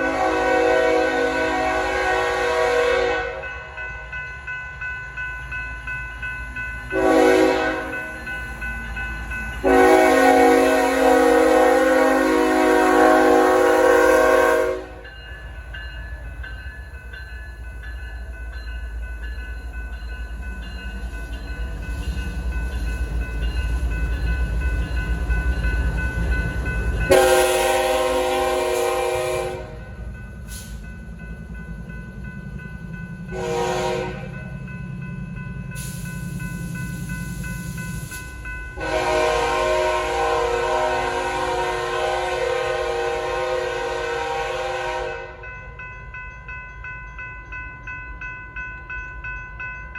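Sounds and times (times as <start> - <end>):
locomotive horn blasts: 0.0 - 3.5, 7.0 - 8.0, 9.6 - 15.0, 27.1 - 29.8, 33.3 - 34.4, 38.8 - 45.4
crossing bells ringing: 0.0 - 49.9.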